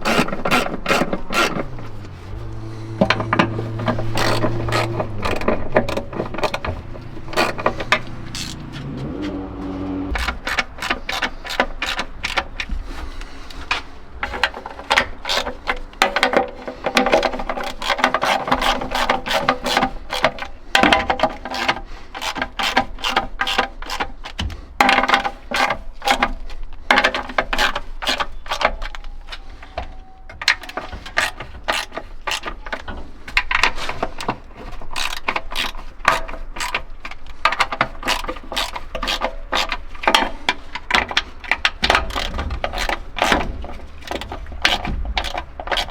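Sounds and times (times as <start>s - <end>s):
socket ratchet clicking: 3.1s - 8.7s.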